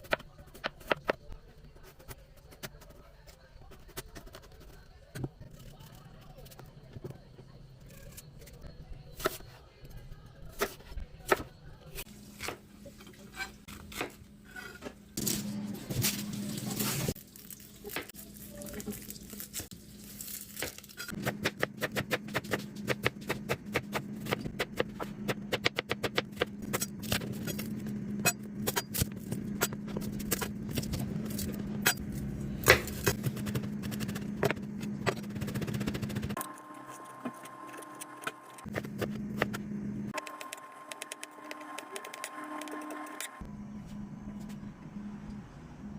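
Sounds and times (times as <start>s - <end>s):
steady low hum: 21.2s - 45.9s.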